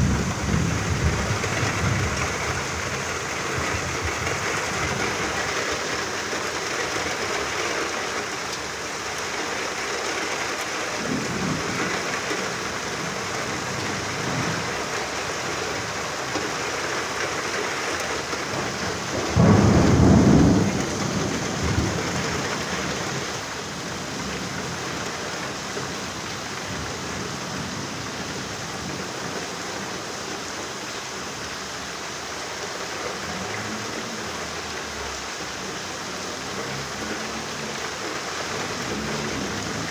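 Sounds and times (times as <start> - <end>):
thunder rumbling: 0.0 - 8.1, 10.9 - 16.2, 18.4 - 25.5
heavy rain: 0.0 - 39.9.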